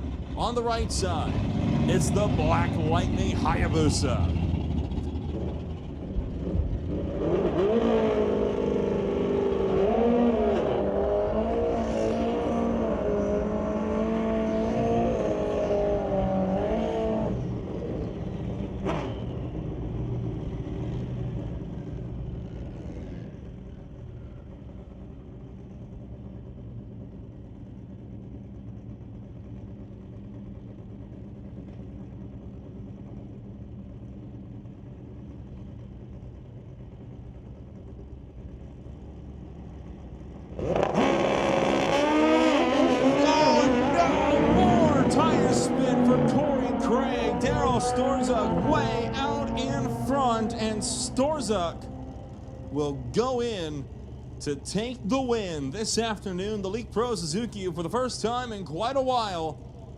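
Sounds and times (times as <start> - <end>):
motorcycle engine revving: 1.1 - 23.6, 40.2 - 57.1.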